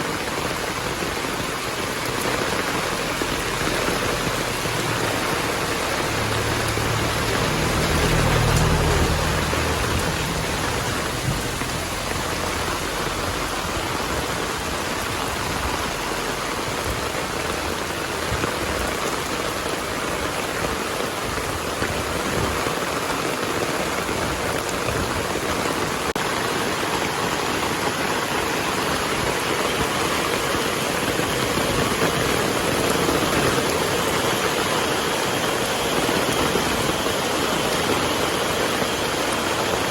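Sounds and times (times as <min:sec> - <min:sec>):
heavy rain pouring: 0:00.0 - 0:39.9
low rumble of thunder: 0:06.2 - 0:14.5.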